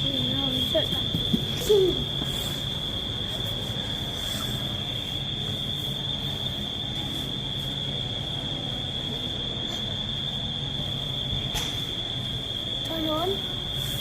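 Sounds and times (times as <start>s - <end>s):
low indoor hum: 0.0s - 14.0s.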